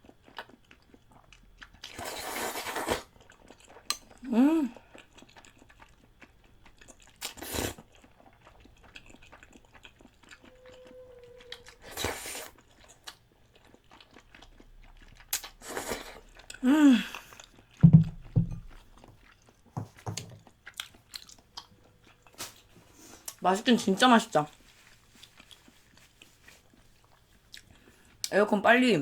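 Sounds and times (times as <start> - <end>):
chewing and crunching food: 0.0 - 29.0
slurping: 1.8 - 3.2, 7.2 - 12.9, 15.2 - 17.7.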